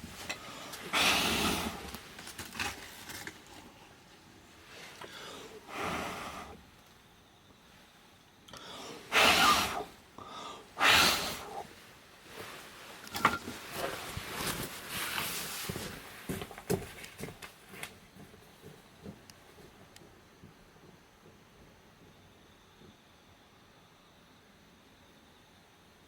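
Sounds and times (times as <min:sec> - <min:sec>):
hissing rushes: 0:00.8 - 0:01.9, 0:08.8 - 0:10.0, 0:10.8 - 0:11.7.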